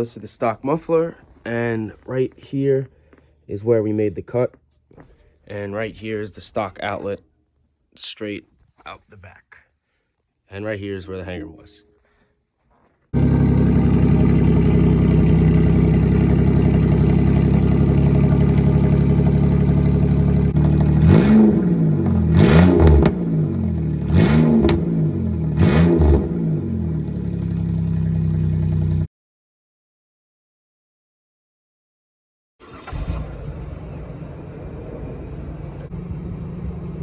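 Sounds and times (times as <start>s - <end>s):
car engine idling and revving: 13.2s - 29.1s, 32.7s - 37.0s.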